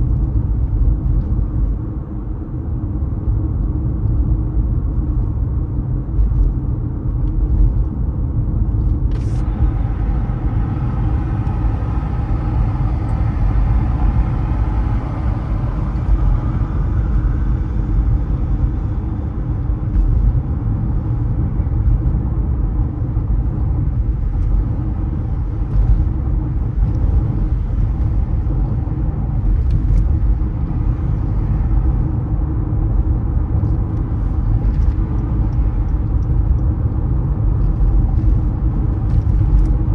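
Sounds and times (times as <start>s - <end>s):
car road and engine rumble: 0.0s - 39.9s
faint multi-tone whine: 9.1s - 20.4s.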